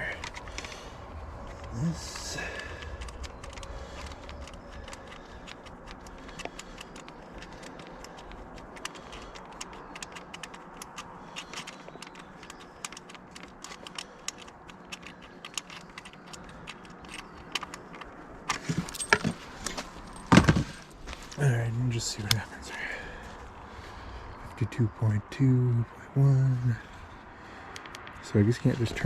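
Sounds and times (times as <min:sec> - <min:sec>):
charger plug clicks and rattles: 0:00.1 - 0:00.8, 0:01.4 - 0:21.1, 0:27.7 - 0:28.2.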